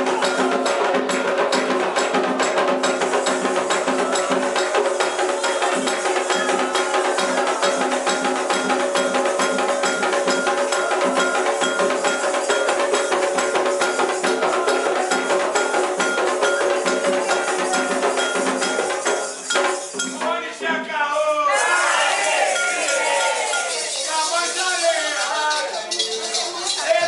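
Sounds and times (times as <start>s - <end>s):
drums and bells percussion: 0.0s - 27.0s
voices: 13.8s - 27.0s.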